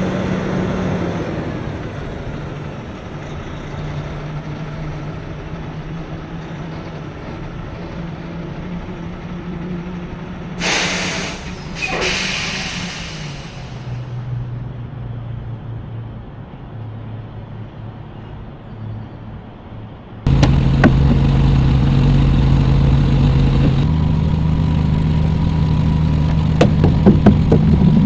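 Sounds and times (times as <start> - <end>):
truck engine running: 0.0 - 14.4, 20.3 - 28.0
air brake hiss: 10.6 - 14.2.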